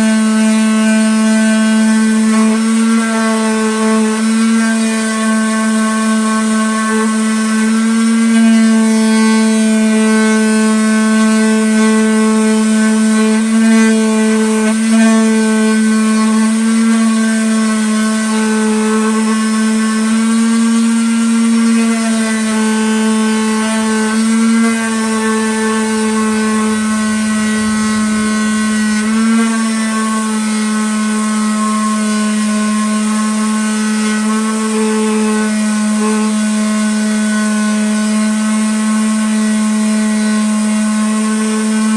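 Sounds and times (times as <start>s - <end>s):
electric sander whining on wood: 0.0s - 41.9s.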